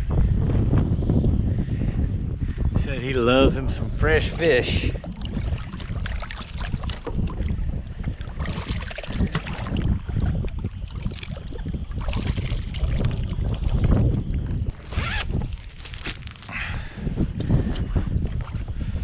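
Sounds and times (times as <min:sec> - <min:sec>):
gusty wind buffeting microphone: 0:00.0 - 0:19.0
water splashes and gear knocks: 0:04.9 - 0:16.5.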